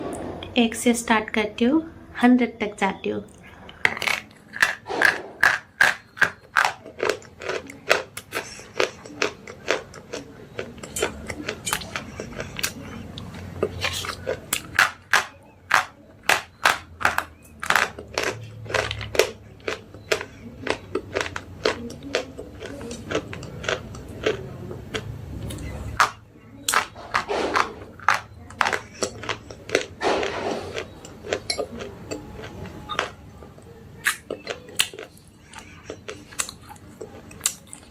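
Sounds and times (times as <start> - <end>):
slate pencils crunched by biting: 3.7 - 12.9, 13.6 - 24.4, 26.0 - 31.5.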